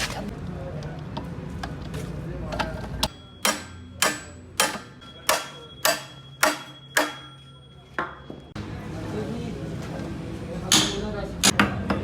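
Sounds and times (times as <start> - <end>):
hammer striking metal: 3.1 - 8.3.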